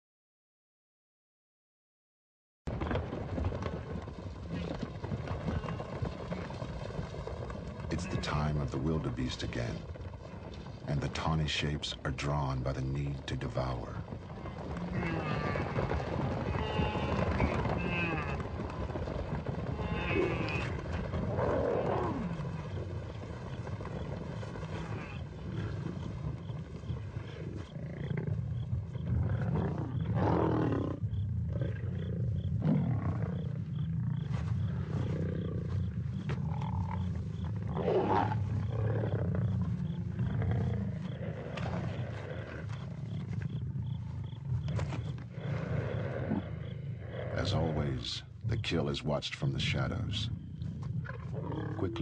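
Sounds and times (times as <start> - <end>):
lions growling and snarling: 13.0 - 49.0, 49.6 - 52.0.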